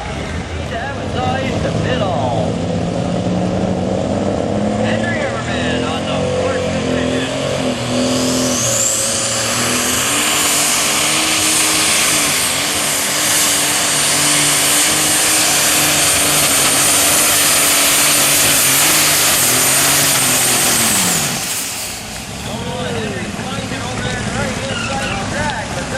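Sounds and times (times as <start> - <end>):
diesel tractor engine under load: 0.0 - 25.9
high turbo whistle: 7.5 - 22.2.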